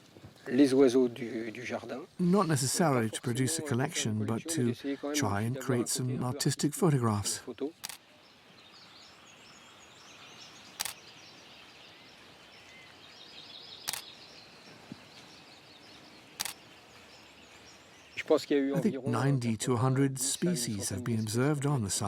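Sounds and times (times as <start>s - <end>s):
birds chirping: 1.6s - 22.0s
camera shutter click: 7.8s - 8.0s, 10.8s - 11.0s, 13.9s - 14.1s, 16.4s - 16.6s.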